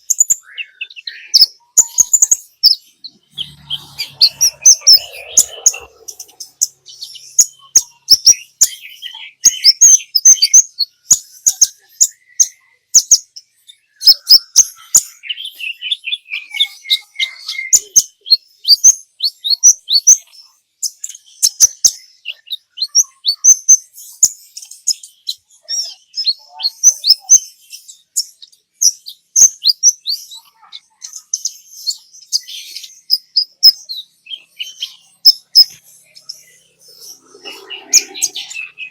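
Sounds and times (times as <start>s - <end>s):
sunbird singing sharp chirps: 0.0s - 10.4s.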